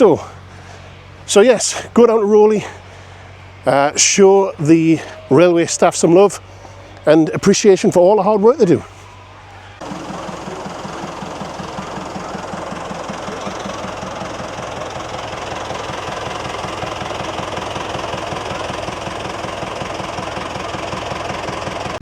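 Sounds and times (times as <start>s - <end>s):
engine idling: 8.7s - 22.0s.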